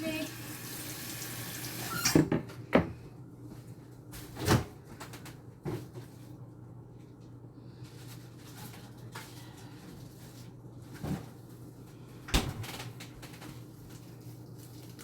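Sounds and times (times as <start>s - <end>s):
tap water running: 0.0s - 2.2s.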